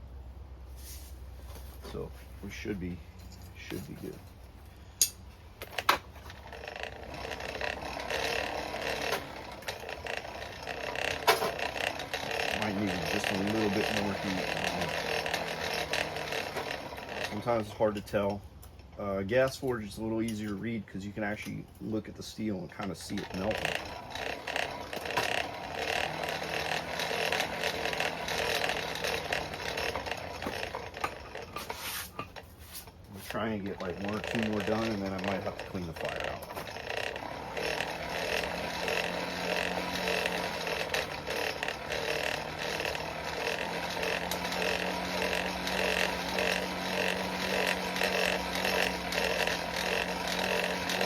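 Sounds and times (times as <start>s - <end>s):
faint low motor hum: 0.0s - 51.0s
sharp metallic clinks: 4.9s - 5.3s
forge blower whirring: 5.0s - 18.4s, 22.5s - 51.0s.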